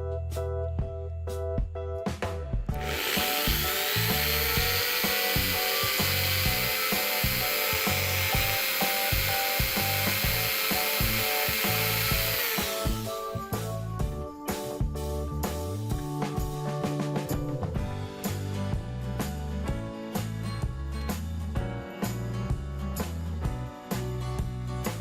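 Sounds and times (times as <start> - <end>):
background music: 0.0 - 25.0
small power tool grinding: 2.7 - 13.4.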